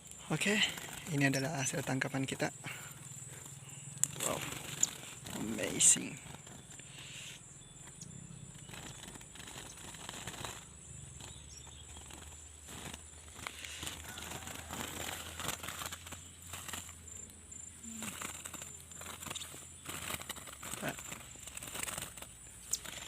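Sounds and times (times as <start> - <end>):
birds fluttering wings: 0.0 - 23.0.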